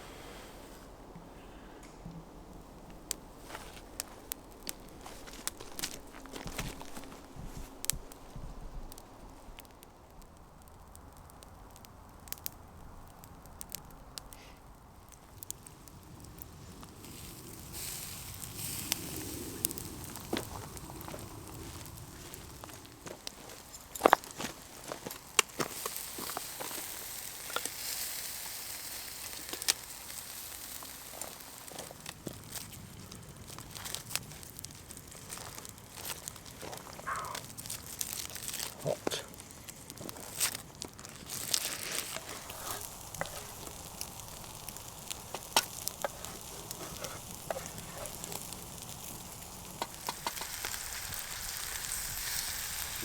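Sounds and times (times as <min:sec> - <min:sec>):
campfire pops and crackles: 0:00.7 - 0:53.0
food sizzling: 0:16.9 - 0:32.8, 0:35.2 - 0:53.0.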